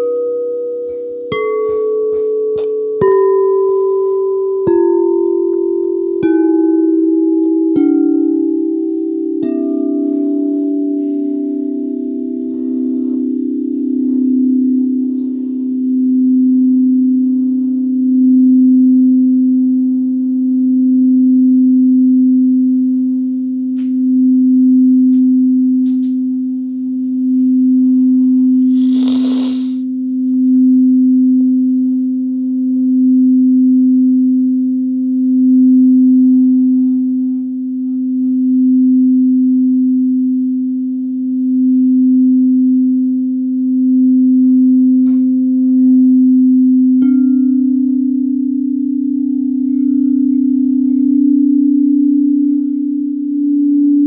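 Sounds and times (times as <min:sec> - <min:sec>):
singing bowl low tone: 0:03.0 - 0:23.4, 0:32.1 - 0:54.0.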